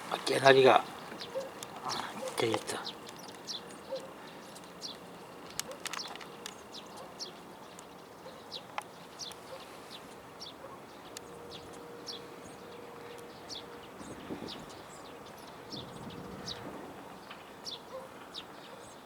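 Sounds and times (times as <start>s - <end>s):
small birds chirping: 0.0s - 19.0s
sharp clicks: 1.1s - 7.0s.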